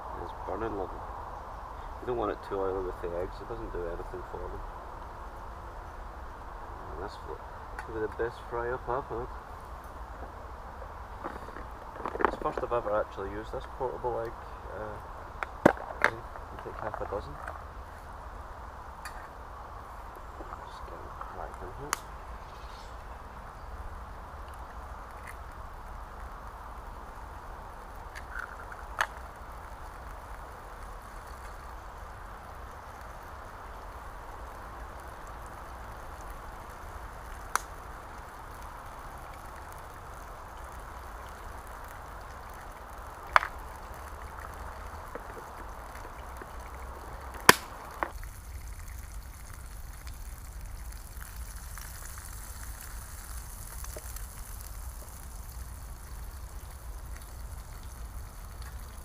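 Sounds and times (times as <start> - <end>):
campfire popping and cracking: 0.0 - 59.0
food sizzling in a pan: 27.3 - 59.0.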